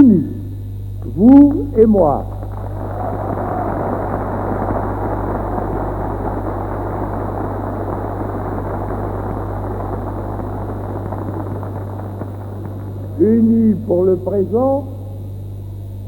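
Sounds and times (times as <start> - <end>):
mains hum: 0.0 - 16.0
crowd cheering and applauding: 2.3 - 13.6.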